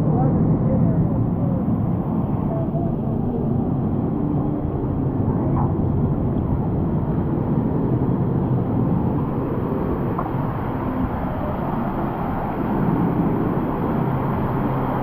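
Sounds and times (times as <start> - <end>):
wind on microphone: 0.0 - 15.0
rushing water: 6.7 - 15.0.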